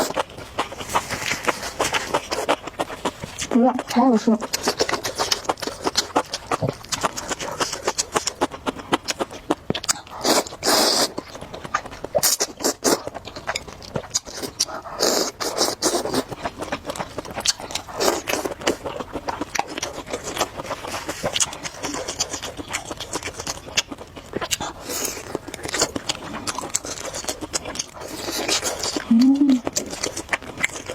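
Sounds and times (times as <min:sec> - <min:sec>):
wet chewing clicks: 0:00.0 - 0:30.9
noodle slurping: 0:09.9 - 0:11.3, 0:14.2 - 0:16.4.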